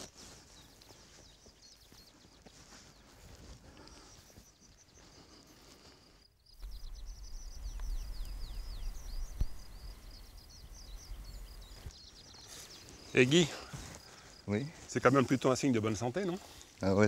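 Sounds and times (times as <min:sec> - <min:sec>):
small bird singing: 0:00.0 - 0:17.0
low rumble: 0:06.6 - 0:11.8.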